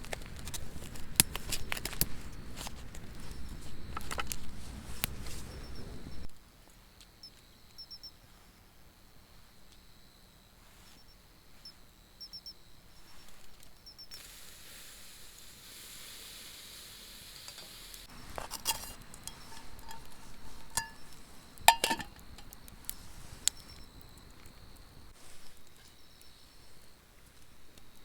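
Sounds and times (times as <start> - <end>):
camp gear clinking: 0.0 - 6.3, 18.1 - 26.3
insects chirping: 0.0 - 28.0
steady hiss: 13.0 - 27.9.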